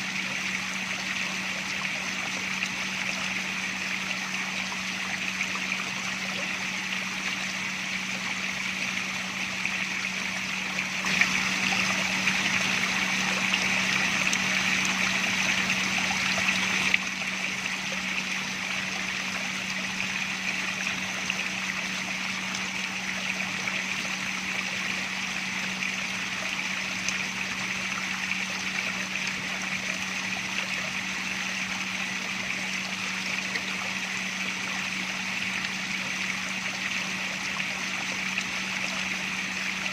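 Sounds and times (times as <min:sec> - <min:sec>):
water running and splashing: 0:00.0 - 0:39.9.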